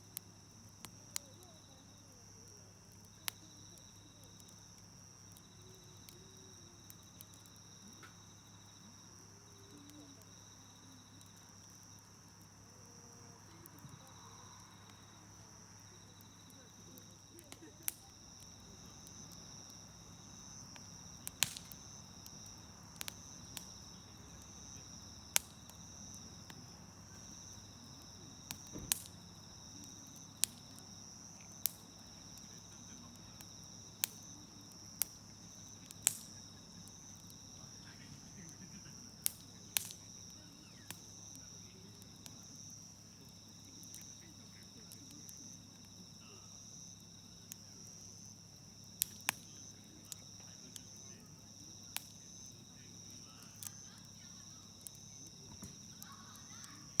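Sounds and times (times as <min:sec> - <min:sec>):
campfire crackling and popping: 0:00.0 - 0:57.0
insect trill: 0:00.0 - 0:57.0.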